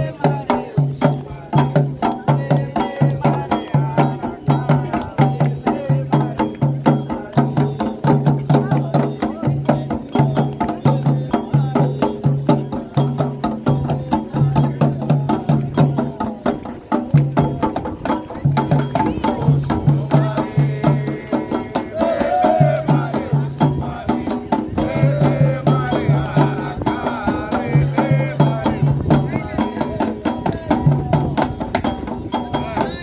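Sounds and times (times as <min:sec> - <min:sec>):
hand drums playing: 0:00.0 - 0:33.0
voices singing: 0:00.0 - 0:33.0.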